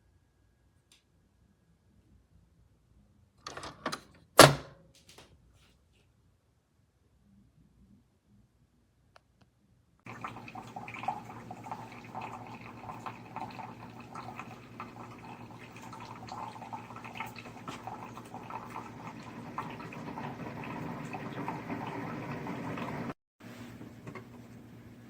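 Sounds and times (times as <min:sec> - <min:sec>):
coffee streaming into a cup: 0:10.1 - 0:23.2
coffee maker pump hum: 0:10.1 - 0:25.0.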